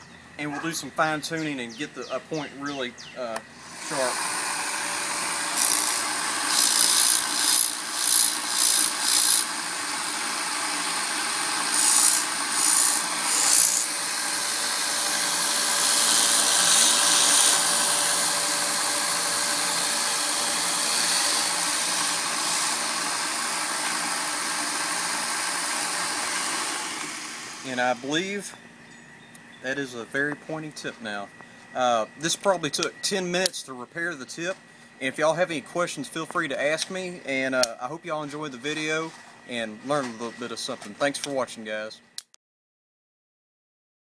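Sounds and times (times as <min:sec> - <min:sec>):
belt sander running: 0:03.4 - 0:28.3
knife grinding on sander belt: 0:03.6 - 0:28.4.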